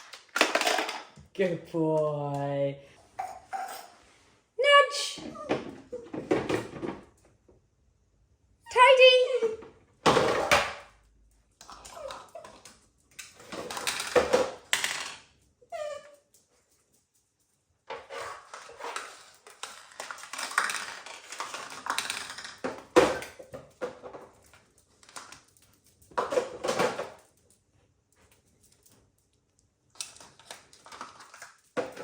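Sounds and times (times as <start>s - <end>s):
hard objects clattering and scraping: 17.9s - 25.4s.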